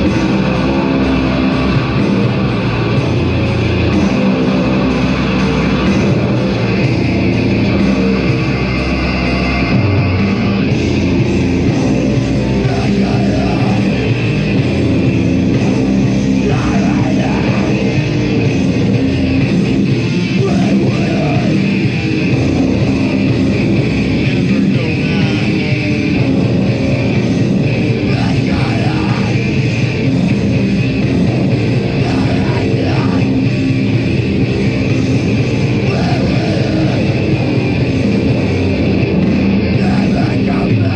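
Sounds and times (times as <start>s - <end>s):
heavy metal band playing live: 0.0s - 40.9s.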